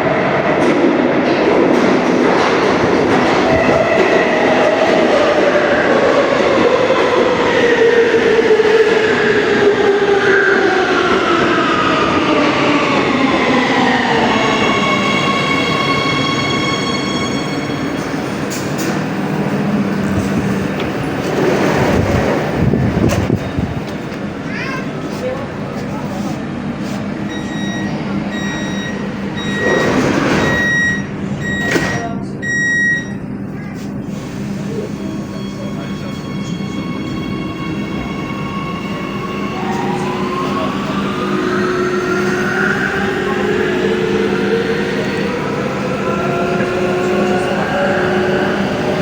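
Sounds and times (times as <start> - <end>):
metro train drive whine: 0.0 - 49.0
door warning beeps: 27.3 - 33.3
sliding doors rushing: 29.2 - 30.8.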